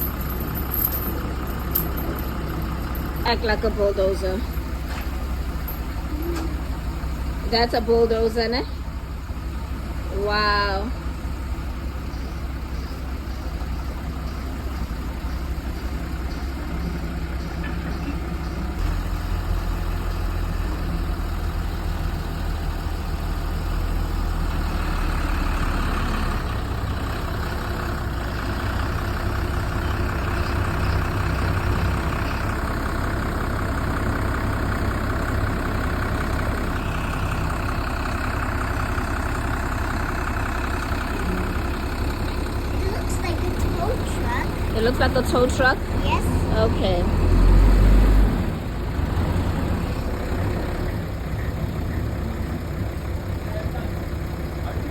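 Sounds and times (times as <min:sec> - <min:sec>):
excavator diesel engine: 0:00.0 - 0:54.9.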